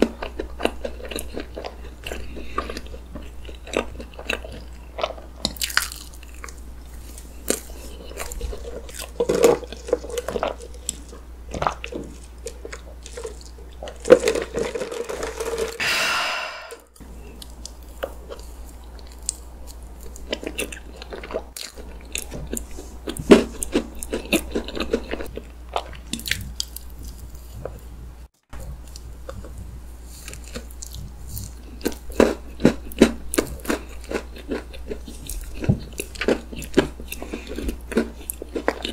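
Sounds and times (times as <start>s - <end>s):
chewing and wet smacking: 0.0s - 14.6s, 17.2s - 27.9s, 28.6s - 38.9s
crunch of crisp bits: 0.0s - 15.8s, 17.1s - 27.8s, 28.6s - 38.9s.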